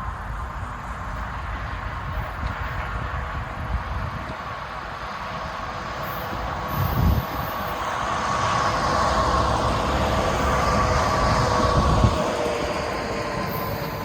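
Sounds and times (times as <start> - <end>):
freight train rumble: 0.0 - 14.0.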